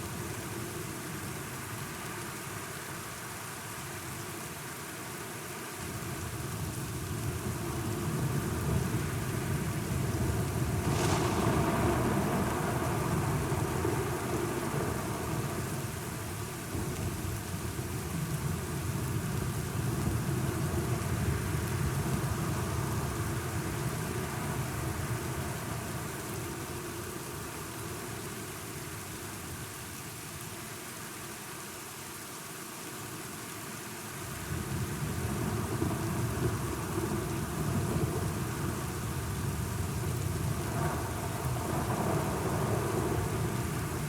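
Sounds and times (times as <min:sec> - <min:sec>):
steady rain: 0:00.0 - 0:44.0
rolling thunder rumble: 0:08.6 - 0:17.6, 0:34.7 - 0:44.0.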